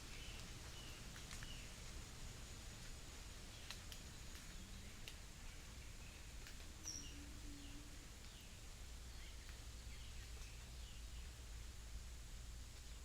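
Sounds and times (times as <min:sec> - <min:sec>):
bird chirps: 0:06.0 - 0:08.5.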